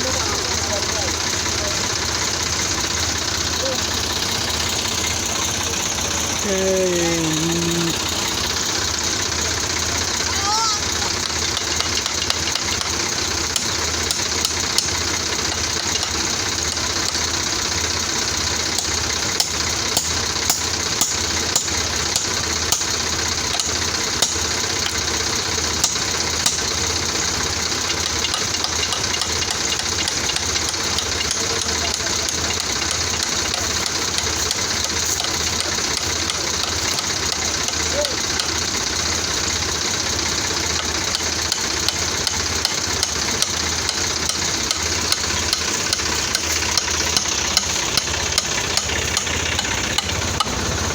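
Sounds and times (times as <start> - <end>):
tractor diesel engine running: 0.0 - 50.9
sharp clicks and knocks: 11.2 - 17.2, 27.8 - 38.9, 40.2 - 50.8.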